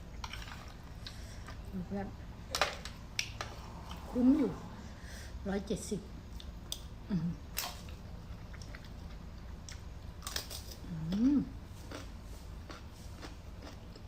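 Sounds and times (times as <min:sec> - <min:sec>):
person humming: 0:07.1 - 0:07.4, 0:10.9 - 0:11.6
person chewing food: 0:07.6 - 0:14.0.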